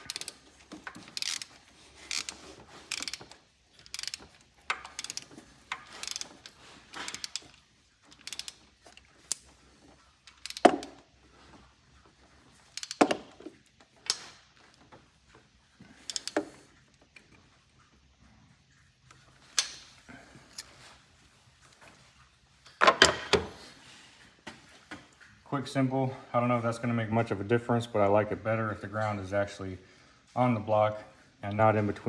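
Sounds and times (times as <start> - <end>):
ratchet wrench clicking: 0.0 - 9.5, 10.2 - 11.0, 12.7 - 13.4, 16.1 - 16.5
metal tools clinking: 0.0 - 11.1.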